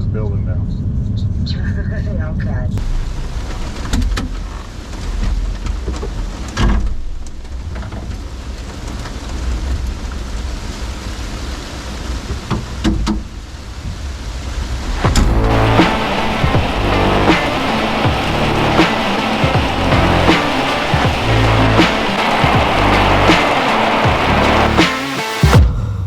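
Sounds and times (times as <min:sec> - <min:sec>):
heavy rain falling: 0:02.8 - 0:25.6
sudden thumps: 0:15.1 - 0:25.6.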